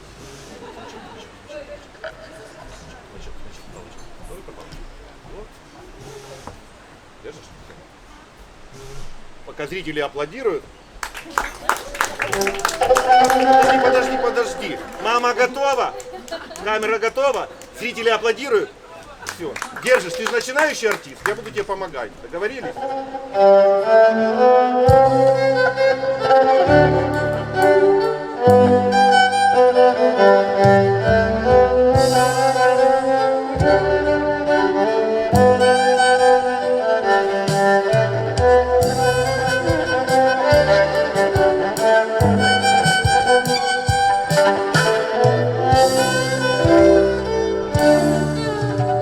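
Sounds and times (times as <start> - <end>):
violin melody: 12.1 - 17.8, 22.4 - 49.0
bass line: 24.9 - 29.8, 30.6 - 36.2, 37.9 - 49.0
steady drum beat: 35.4 - 36.0, 38.4 - 48.8.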